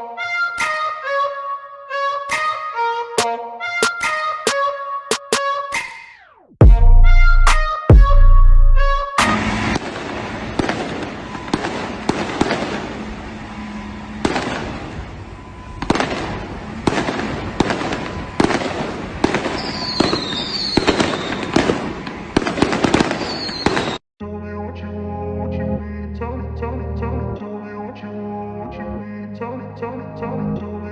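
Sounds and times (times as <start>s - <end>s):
firecrackers crackling and banging: 9.2s - 13.5s, 14.2s - 24.0s
short falling whistles: 19.6s - 21.5s, 23.3s - 24.0s.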